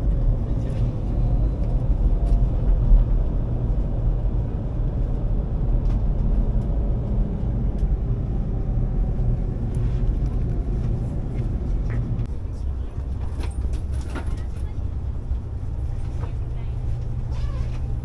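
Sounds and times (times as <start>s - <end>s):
train cabin rumble: 0.0s - 18.0s.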